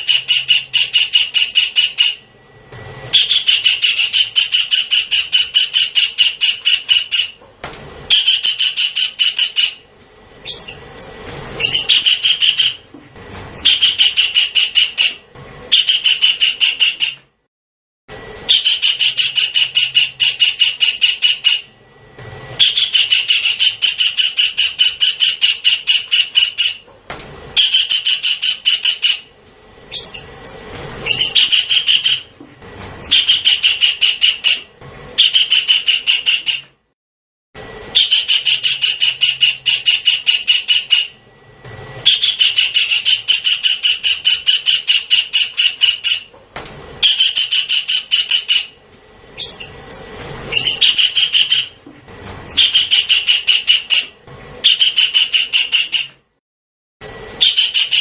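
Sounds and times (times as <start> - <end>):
kingfisher harsh repeated calls: 0.0 - 2.2, 3.1 - 7.4, 10.5 - 12.8, 13.6 - 17.2, 22.6 - 26.8, 27.6 - 29.3, 29.9 - 32.3, 33.0 - 36.7, 38.0 - 41.2, 42.0 - 46.3, 47.0 - 48.8, 49.4 - 51.8, 52.5 - 56.1.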